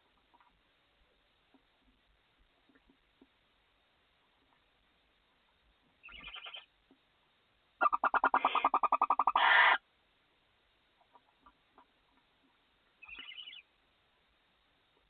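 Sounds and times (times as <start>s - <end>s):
barn owl trilling: 6.0s - 6.7s, 7.8s - 9.8s, 13.0s - 13.7s.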